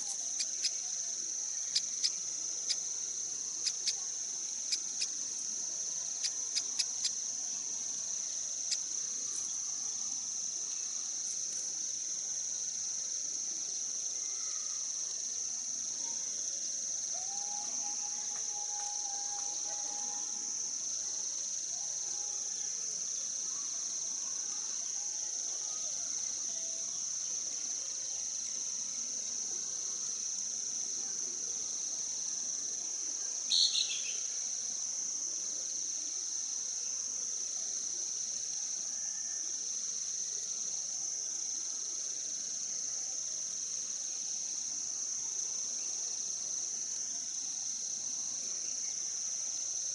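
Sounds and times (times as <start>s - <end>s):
insects droning: 0.0s - 49.9s.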